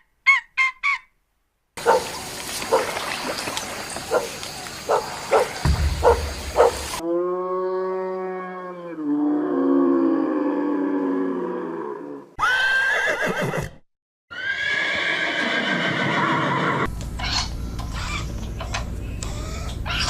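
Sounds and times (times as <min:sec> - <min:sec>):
steady hiss: 0:01.8 - 0:07.0
cow mooing: 0:06.1 - 0:12.3
horse whinnying: 0:12.4 - 0:16.9.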